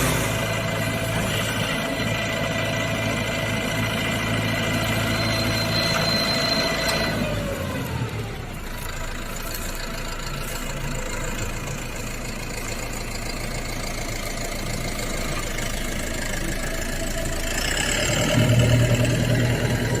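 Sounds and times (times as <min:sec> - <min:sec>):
machine whine: 0:00.0 - 0:08.4
harvester engine running: 0:00.0 - 0:20.0.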